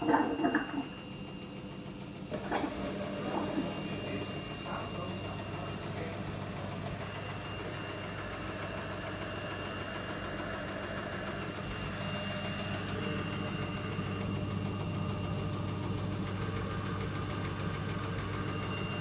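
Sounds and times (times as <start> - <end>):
washing machine drum grinding: 0.0 - 1.0, 2.3 - 4.4.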